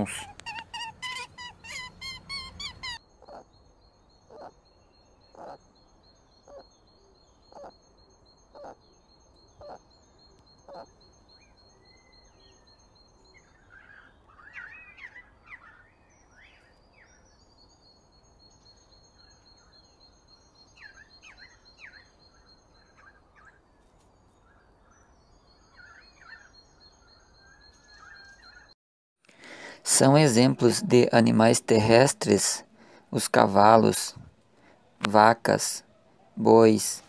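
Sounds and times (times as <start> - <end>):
guinea pig squeaking: 0.0 - 3.5, 5.3 - 5.6.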